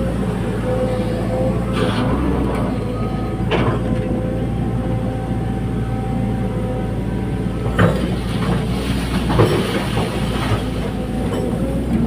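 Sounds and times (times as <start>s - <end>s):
excavator engine running: 0.0s - 12.0s.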